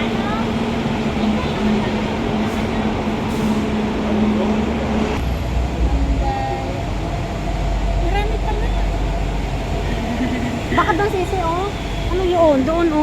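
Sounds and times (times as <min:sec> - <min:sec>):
road traffic noise: 0:00.0 - 0:13.0
vehicle engine low hum: 0:05.1 - 0:12.1.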